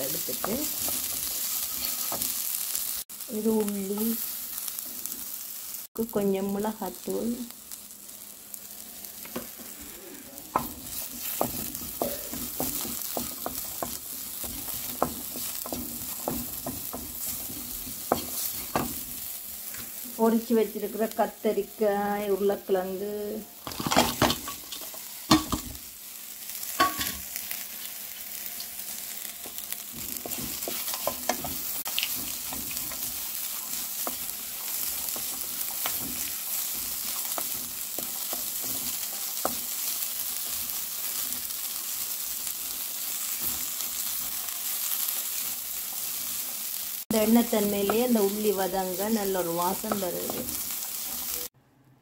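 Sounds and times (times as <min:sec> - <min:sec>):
utensil scraping a wok: 0:00.0 - 0:02.7, 0:09.3 - 0:19.9, 0:29.4 - 0:42.0
vegetables sizzling in oil: 0:00.0 - 0:51.6.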